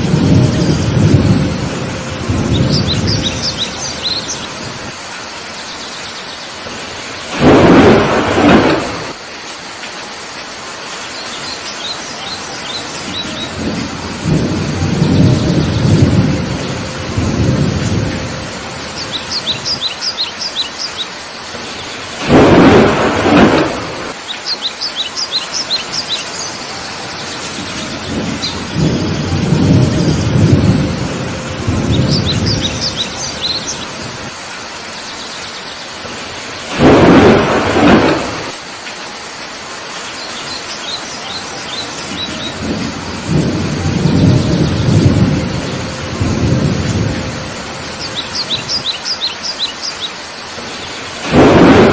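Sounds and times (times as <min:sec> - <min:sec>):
sharp thunderclaps: 0:00.0 - 0:05.0, 0:06.6 - 0:09.2, 0:13.0 - 0:19.9, 0:21.6 - 0:24.2, 0:27.5 - 0:34.4, 0:36.1 - 0:38.6, 0:42.0 - 0:48.9, 0:51.1 - 0:51.9
low rolling thunder rumbles: 0:00.0 - 0:05.3, 0:06.6 - 0:09.2, 0:12.5 - 0:20.6, 0:21.5 - 0:24.3, 0:26.6 - 0:34.4, 0:36.0 - 0:38.7, 0:41.4 - 0:49.0, 0:50.6 - 0:51.9
heavy rain falling: 0:00.0 - 0:51.9
high bird chirps: 0:31.9 - 0:33.9.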